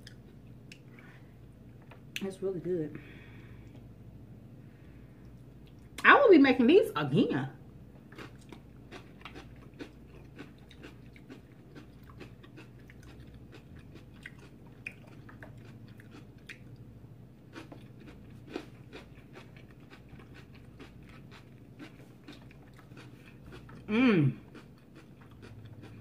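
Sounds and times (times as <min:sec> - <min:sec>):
chewing crunchy food: 0:08.0 - 0:26.0.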